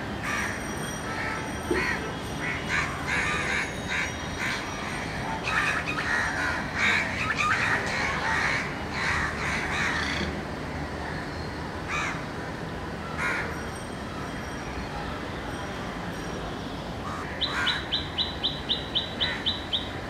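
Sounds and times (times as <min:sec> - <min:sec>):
birds calling: 0:17.0 - 0:20.0.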